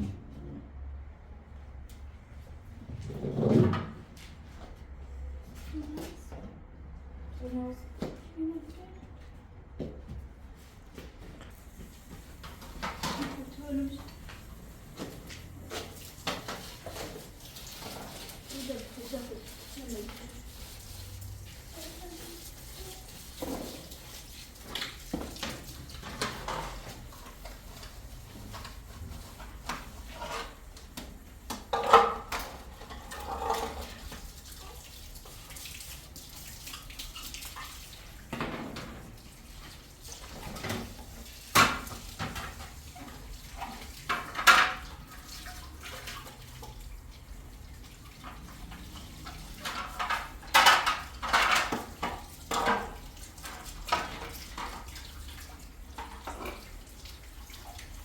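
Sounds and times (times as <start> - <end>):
water splashing and dripping: 11.5 - 58.0
kitchen items clattering: 12.3 - 34.4, 40.3 - 45.1, 48.1 - 54.9.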